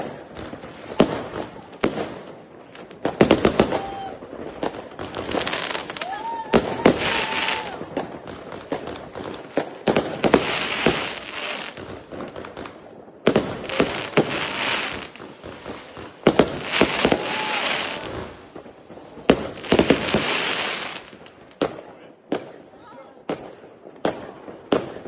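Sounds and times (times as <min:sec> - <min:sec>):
firework bangs and crackling: 0:00.0 - 0:25.0
firework whistle: 0:03.4 - 0:04.4, 0:05.2 - 0:08.1, 0:16.4 - 0:18.4.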